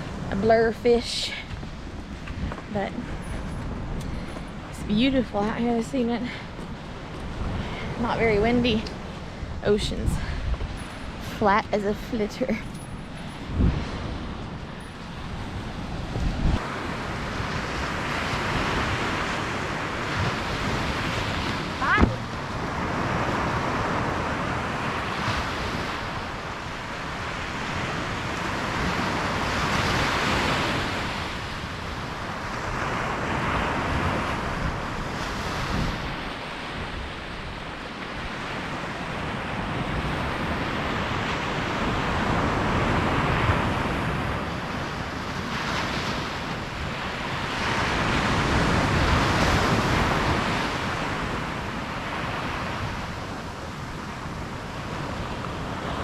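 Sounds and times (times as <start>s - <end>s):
ocean surf breaking on beach: 0.0s - 56.0s.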